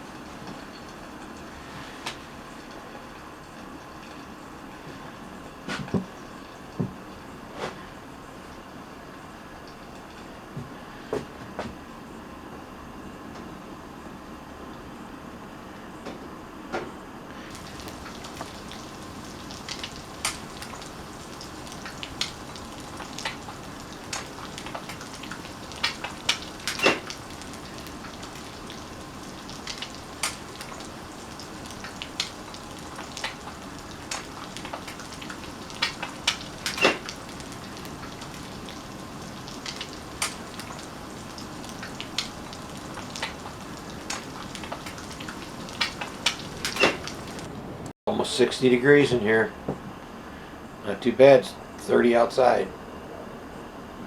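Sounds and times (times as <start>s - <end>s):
egg sizzling in a pan: 17.4s - 47.5s
sharp pops and crackles: 17.5s - 47.5s.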